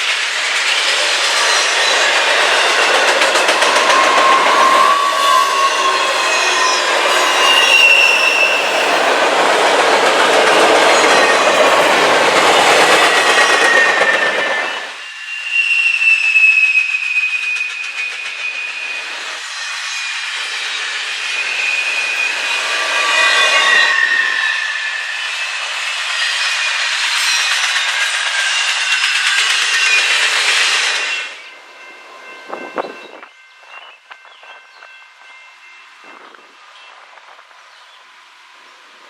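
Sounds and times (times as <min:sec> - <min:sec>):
train wheels rolling on rails: 0:00.0 - 0:39.0
high wheel squeal: 0:00.3 - 0:31.5.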